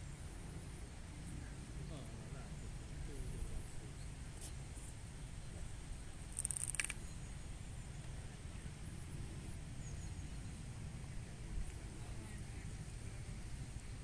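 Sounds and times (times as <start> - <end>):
wind rumble on microphone: 0.0 - 14.0
small birds chirping: 0.1 - 12.7.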